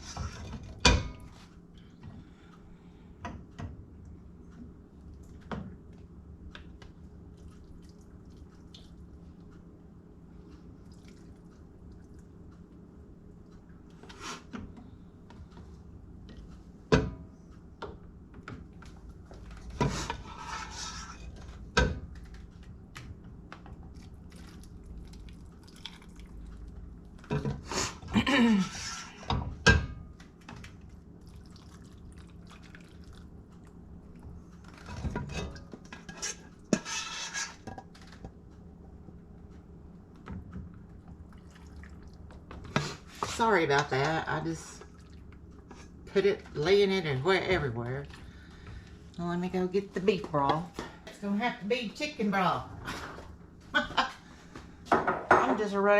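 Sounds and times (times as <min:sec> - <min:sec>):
scraping and rustling: 0:19.6 - 0:21.6, 0:34.8 - 0:38.2.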